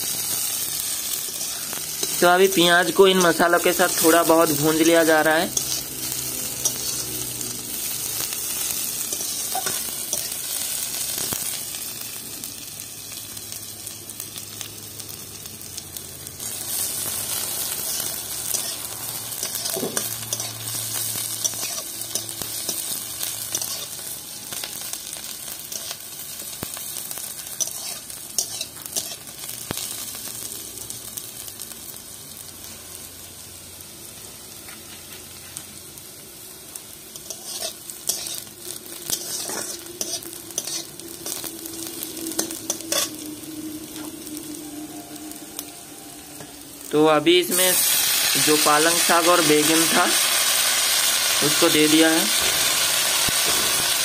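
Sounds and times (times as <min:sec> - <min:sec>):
onions sizzling in hot oil: 0:00.0 - 0:54.0
metal spatula scraping a pan: 0:17.7 - 0:24.0, 0:27.5 - 0:29.2, 0:37.1 - 0:38.5, 0:39.1 - 0:43.3.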